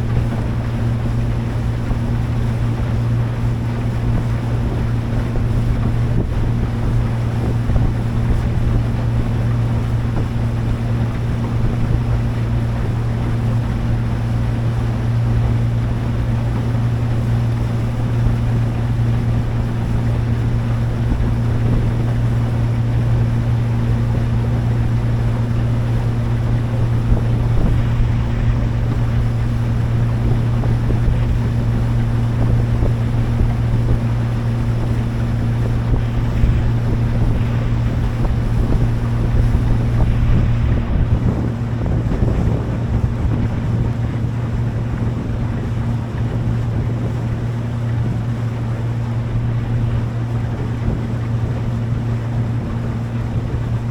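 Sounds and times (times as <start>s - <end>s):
motorboat engine hum: 0.0s - 53.9s
water rushing past hull: 0.0s - 53.9s
wind buffeting microphone: 0.0s - 53.9s.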